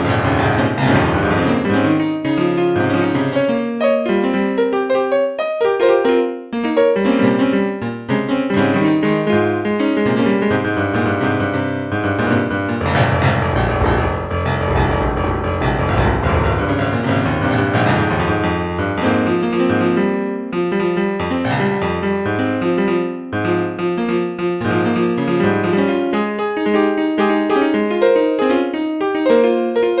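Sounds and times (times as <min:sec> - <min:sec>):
piano music: 0:00.0 - 0:07.6, 0:12.0 - 0:24.3.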